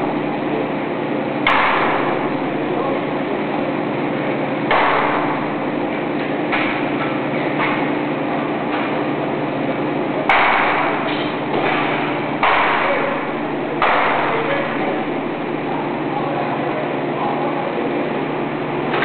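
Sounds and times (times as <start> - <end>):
steady machinery hum: 0.0 - 19.0
loud ringing bangs: 1.4 - 2.5, 4.6 - 5.8, 10.2 - 15.4.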